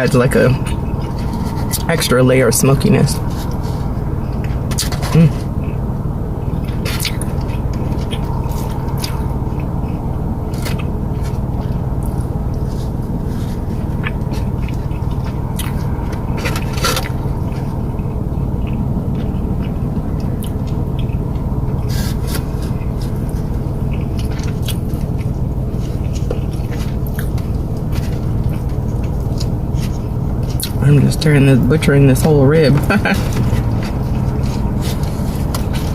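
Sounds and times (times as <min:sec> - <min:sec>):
steady low rumble: 0:00.0 - 0:35.9
biting and tearing meat: 0:03.2 - 0:30.8.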